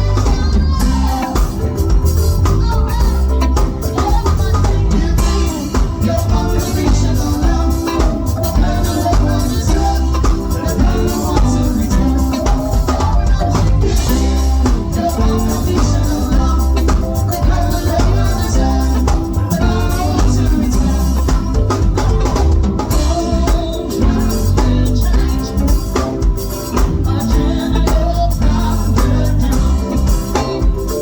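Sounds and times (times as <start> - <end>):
band music: 0.0 - 31.0
person singing: 0.0 - 31.0.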